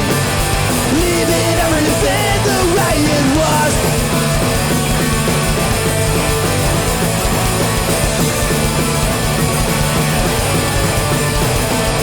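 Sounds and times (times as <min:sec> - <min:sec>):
hardcore punk band playing: 0:00.0 - 0:12.0.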